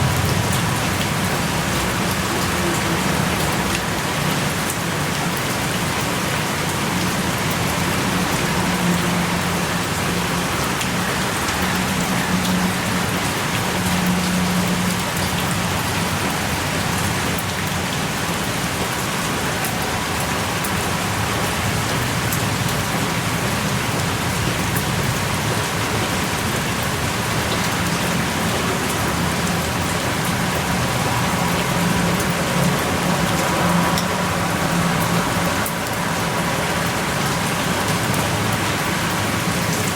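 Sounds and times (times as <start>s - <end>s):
heavy rain pouring: 0.0s - 39.9s
raindrops ticking: 0.0s - 39.9s.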